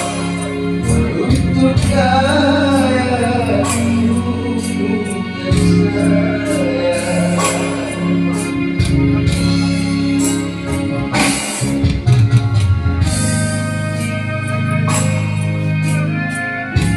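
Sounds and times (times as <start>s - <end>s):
person singing mournful song: 0.0s - 9.8s
low held accompaniment: 0.0s - 16.9s.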